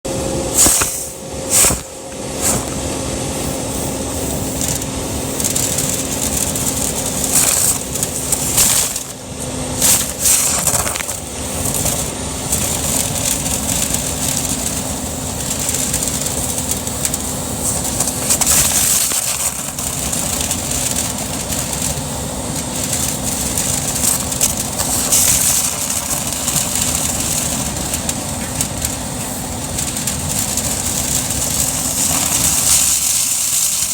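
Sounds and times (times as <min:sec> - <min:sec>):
machine humming: 0:00.0 - 0:33.9
crackling and scraping in vent: 0:00.1 - 0:33.9.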